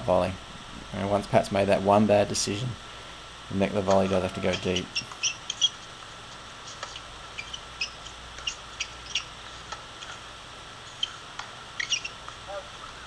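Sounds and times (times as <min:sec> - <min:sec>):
small birds chirping: 0:03.9 - 0:10.2, 0:10.8 - 0:13.0.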